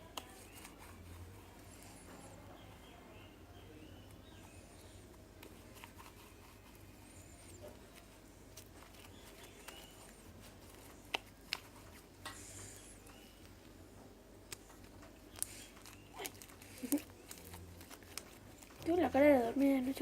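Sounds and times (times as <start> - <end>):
hands tapping and clicking objects: 0.0 - 0.8.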